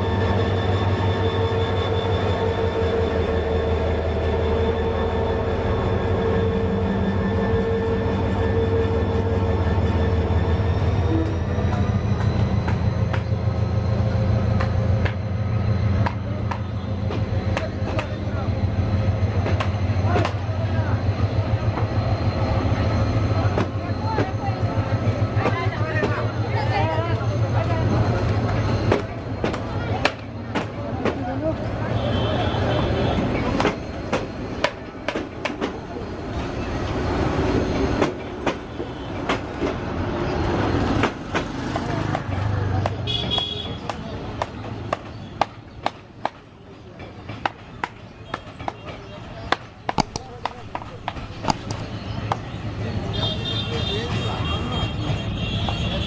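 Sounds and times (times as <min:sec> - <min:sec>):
train rumbling on track: 0:00.0 - 0:56.0
wheels clickety-clack over rail joints: 0:11.1 - 0:32.0, 0:32.6 - 0:56.0
wheels clicking over rail joints: 0:48.6 - 0:52.4.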